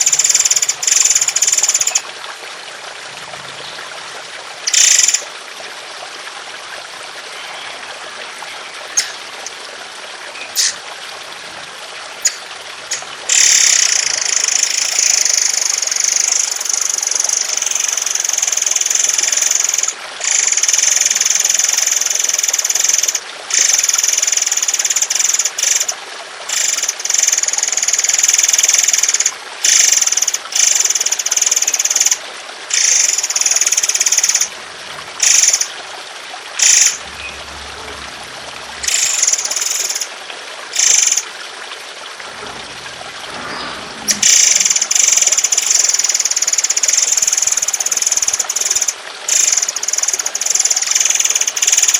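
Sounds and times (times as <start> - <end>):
trickling water: 0.0 - 51.9
songbird harsh rasping calls: 8.8 - 9.5, 10.4 - 10.9.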